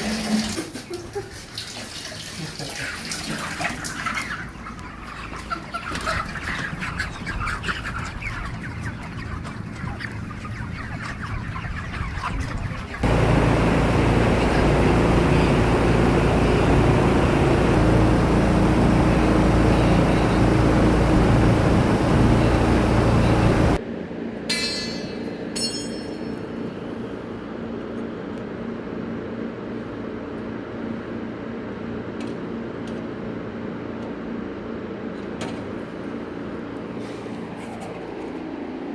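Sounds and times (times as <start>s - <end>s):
loud machinery drone: 13.0s - 23.8s.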